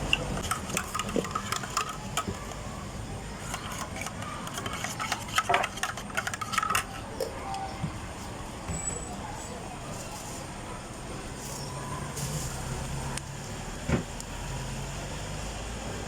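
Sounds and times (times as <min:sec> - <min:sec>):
utensils and cups clattering: 0:00.0 - 0:07.4
steady background noise: 0:00.0 - 0:16.0.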